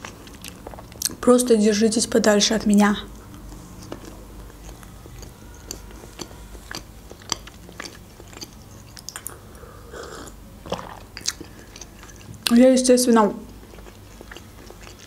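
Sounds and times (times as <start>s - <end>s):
chewing: 0.0s - 1.2s, 3.2s - 12.5s, 13.5s - 15.0s
wet mouth clicks and smacks: 6.7s - 9.4s, 10.7s - 12.3s.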